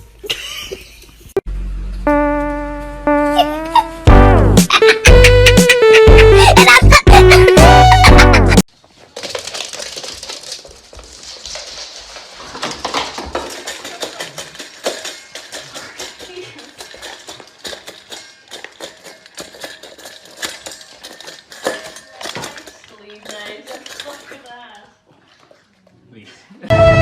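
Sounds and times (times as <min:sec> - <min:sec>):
hard objects clicking together: 0:09.1 - 0:24.5.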